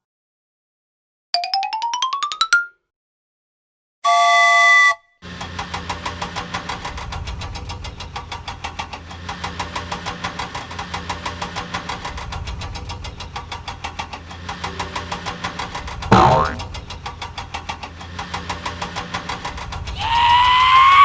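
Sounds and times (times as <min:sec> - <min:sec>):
vehicle engine idling: 0:05.3 - 0:20.0.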